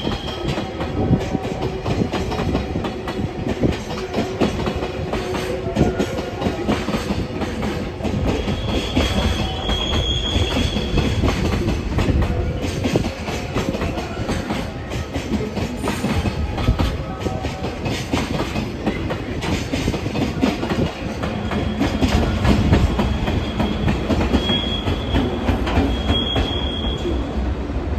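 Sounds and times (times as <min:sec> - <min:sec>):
freight train rumbling past: 0:00.0 - 0:27.9
wheel squeal: 0:08.4 - 0:11.2, 0:21.4 - 0:27.1.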